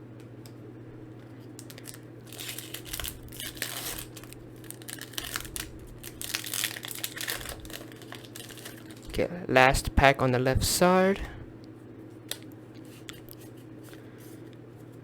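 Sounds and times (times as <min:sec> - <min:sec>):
steady low hum: 0:00.0 - 0:15.0
foil wrapper crinkling and tearing: 0:01.6 - 0:09.2.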